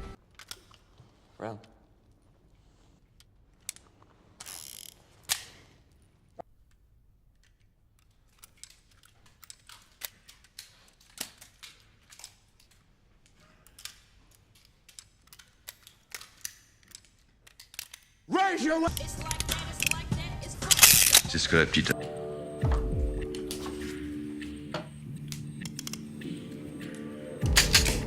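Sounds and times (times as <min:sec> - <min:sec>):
small mechanical clicks and rattles: 0:06.7 - 0:18.3, 0:18.9 - 0:21.3, 0:27.4 - 0:28.0.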